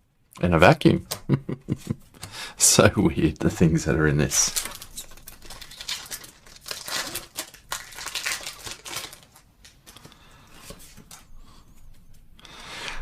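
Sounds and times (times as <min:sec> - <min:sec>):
trading cards rustling and clicking: 0:04.3 - 0:11.3.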